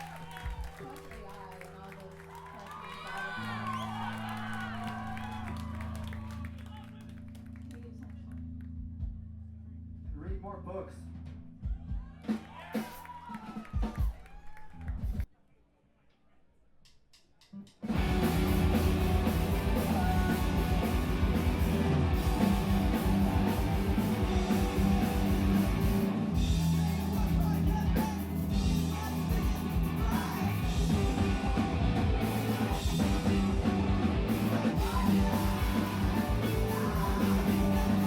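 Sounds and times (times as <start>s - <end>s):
rock band playing loudly: 17.8s - 38.0s.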